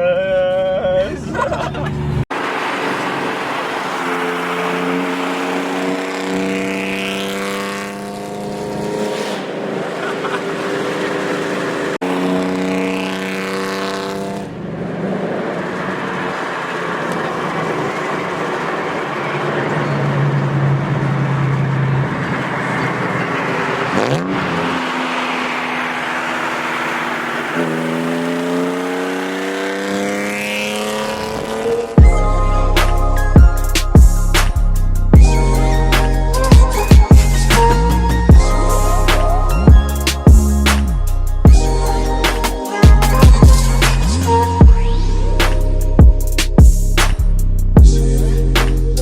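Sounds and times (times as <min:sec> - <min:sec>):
car engine accelerating hard: 0:00.9 - 0:49.0.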